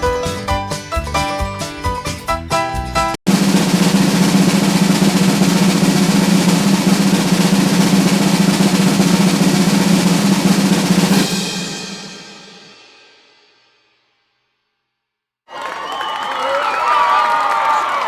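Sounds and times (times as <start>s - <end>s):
snare drum roll: 3.3s - 12.8s.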